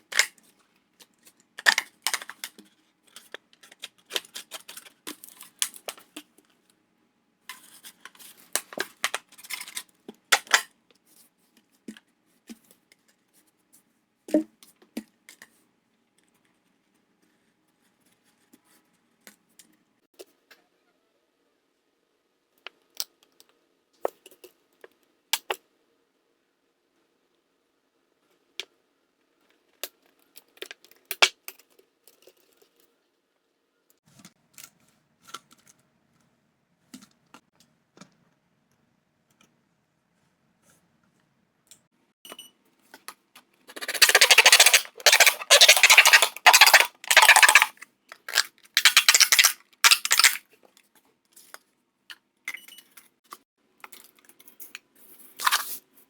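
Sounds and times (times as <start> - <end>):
objects clicking and tapping: 1.0 - 6.5, 42.3 - 50.8
loud rapid rattling and crackling: 43.8 - 47.7, 48.8 - 50.4.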